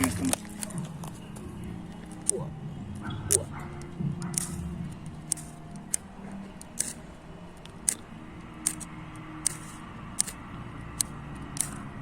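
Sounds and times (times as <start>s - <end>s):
flint striker rasping: 3.3s - 11.9s.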